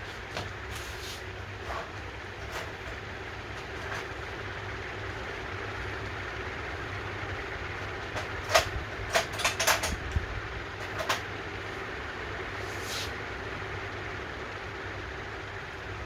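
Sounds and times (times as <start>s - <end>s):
steady low hum: 0.0s - 16.0s
tools clicking and clinking: 8.2s - 10.1s.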